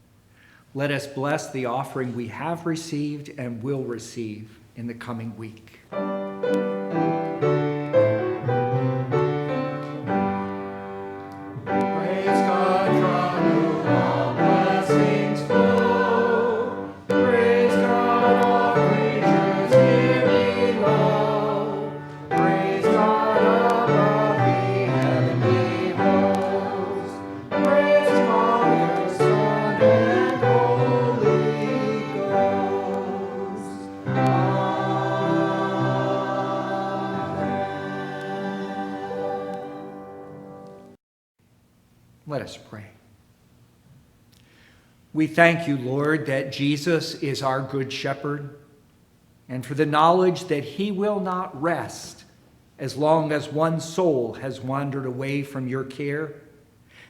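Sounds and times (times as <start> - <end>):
instrumental accompaniment: 5.9 - 41.0
choir singing a hymn: 6.4 - 41.0.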